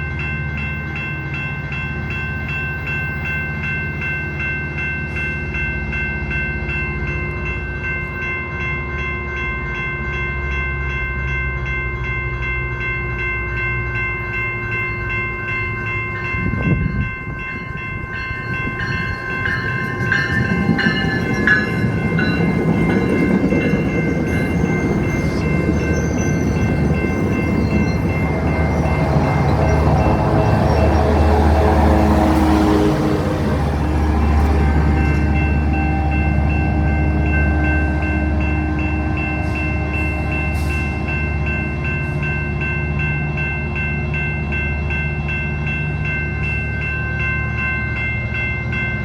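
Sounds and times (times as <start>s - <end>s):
diesel locomotive droning: 0.0s - 49.0s
railroad crossing bells: 0.0s - 49.0s
train wheels on rails: 14.2s - 37.8s, 38.8s - 49.0s.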